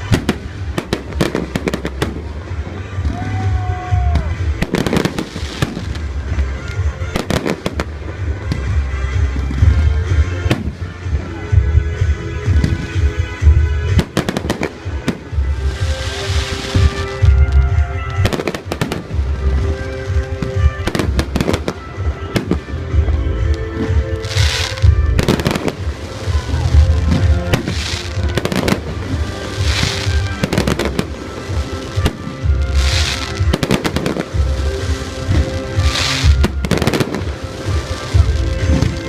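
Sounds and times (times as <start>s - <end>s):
hissing crackling firework shower: 0.0s - 39.0s
music: 0.0s - 39.0s.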